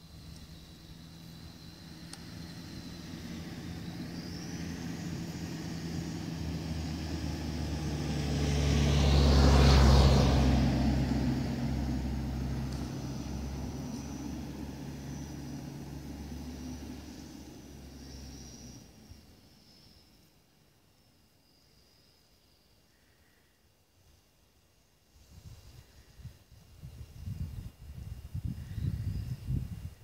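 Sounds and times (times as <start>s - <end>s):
low drivetrain rumble: 0.0s - 20.0s
rc vehicle electric motors whining: 0.2s - 6.4s, 12.7s - 20.1s.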